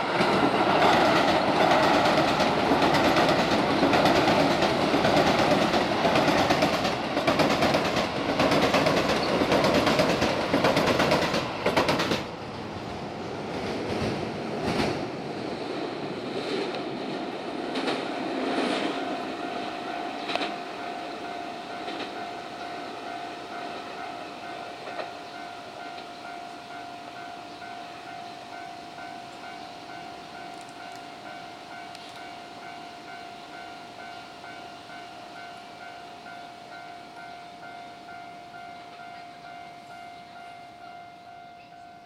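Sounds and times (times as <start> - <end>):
electric train passing: 0.0 - 42.0
level-crossing warning bell: 18.0 - 42.0.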